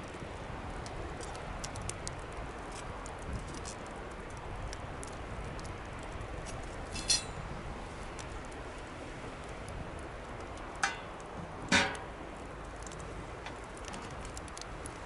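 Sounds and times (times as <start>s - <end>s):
campfire crackling: 0.0s - 15.0s
sharp clinks: 7.0s - 7.4s.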